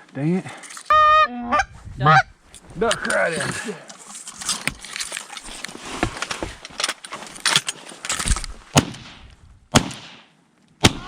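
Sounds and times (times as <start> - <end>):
shotgun shots: 8.7 - 11.0.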